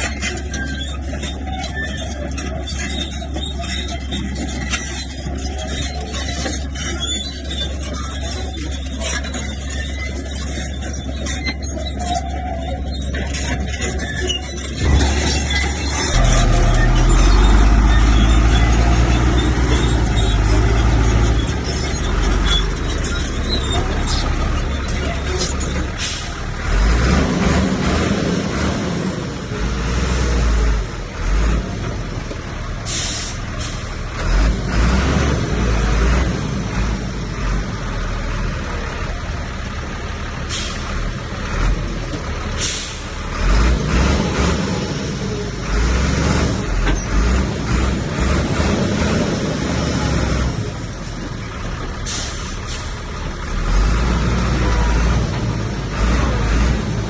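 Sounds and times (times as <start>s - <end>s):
bulldozer diesel engine rumbling: 0.0s - 57.0s.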